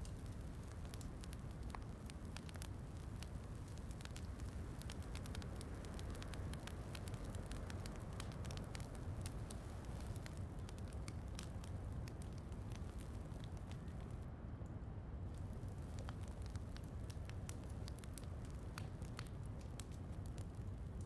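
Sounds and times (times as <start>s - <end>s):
steady rain: 0.0s - 14.2s
wood fire crackling: 0.0s - 14.3s, 15.3s - 21.0s.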